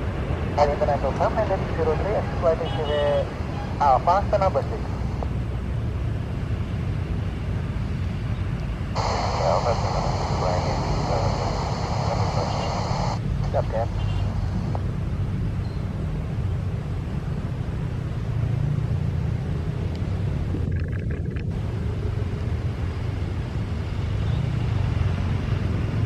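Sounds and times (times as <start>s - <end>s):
low engine rumble: 8.9s - 15.6s
high hiss: 9.0s - 14.7s.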